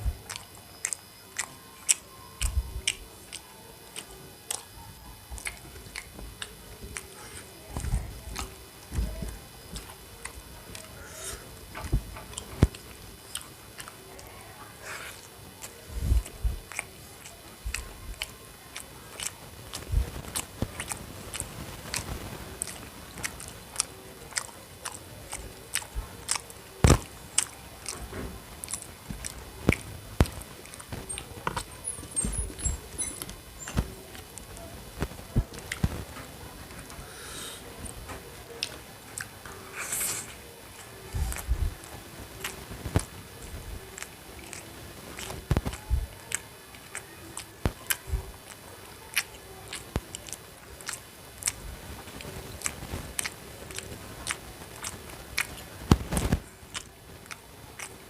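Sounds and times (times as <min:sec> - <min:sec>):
wet mouth clicks and smacks: 0:00.2 - 0:04.7, 0:15.0 - 0:36.0, 0:42.4 - 0:58.0
chewing and biting: 0:00.2 - 0:58.0.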